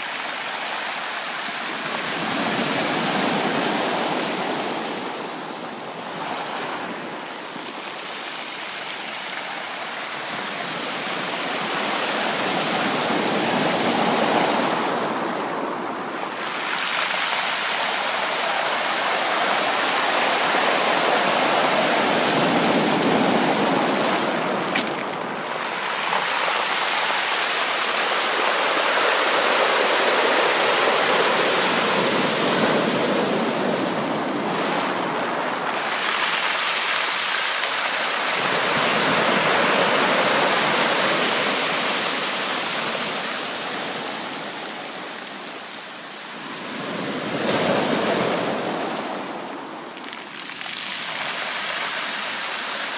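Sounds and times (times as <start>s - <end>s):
ocean waves breaking on beach: 0.0s - 52.9s.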